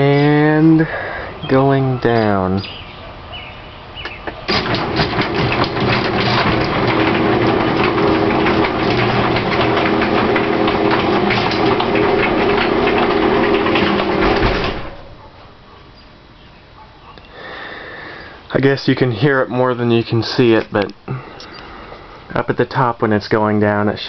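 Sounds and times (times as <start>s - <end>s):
garage door motor humming: 4.4s - 15.3s
garage door rattling: 4.4s - 15.3s.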